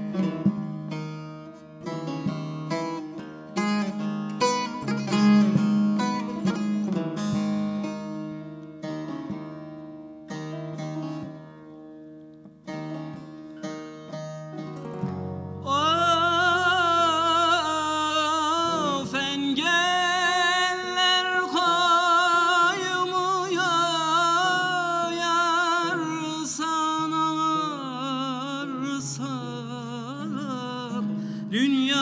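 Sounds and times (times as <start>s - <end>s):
ornamented held vocal line: 15.7s - 26.7s.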